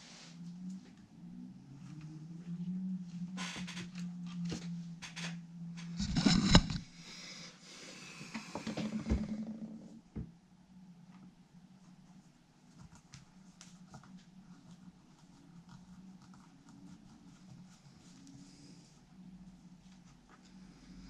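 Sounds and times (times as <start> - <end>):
low steady hum: 0.0 - 21.0
small clicks and scrapes: 3.4 - 7.0.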